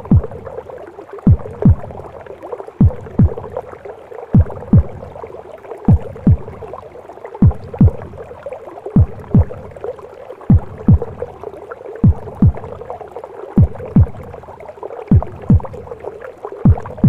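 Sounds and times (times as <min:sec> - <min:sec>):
heartbeat thumps: 0:00.0 - 0:00.6, 0:01.2 - 0:02.2, 0:02.8 - 0:03.6, 0:04.4 - 0:05.2, 0:05.9 - 0:06.8, 0:07.4 - 0:08.3, 0:09.0 - 0:09.8, 0:10.5 - 0:11.4, 0:12.0 - 0:12.9, 0:13.6 - 0:14.4, 0:15.1 - 0:16.0, 0:16.6 - 0:17.0
muffled rushing womb sound: 0:00.0 - 0:17.0.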